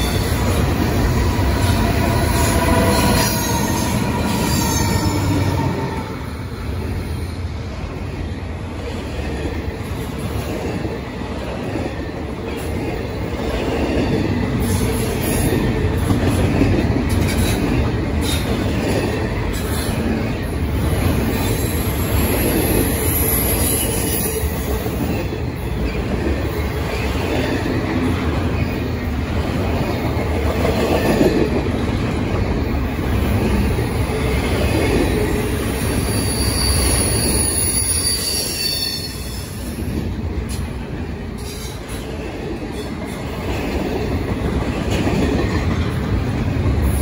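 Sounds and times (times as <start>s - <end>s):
freight train wheels rumbling on rail: 0.0s - 47.0s
high wheel squeals: 35.8s - 39.6s.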